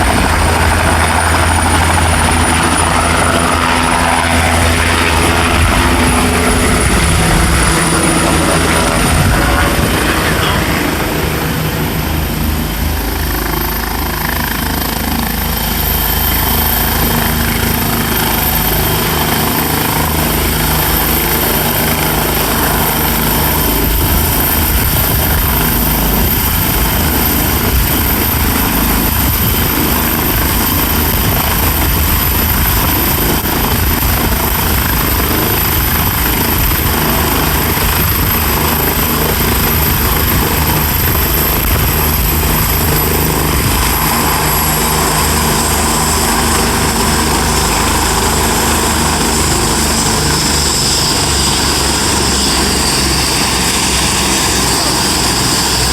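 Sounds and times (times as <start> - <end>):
helicopter rotor and engine: 0.0 - 55.9
high turbine whine: 0.0 - 55.9.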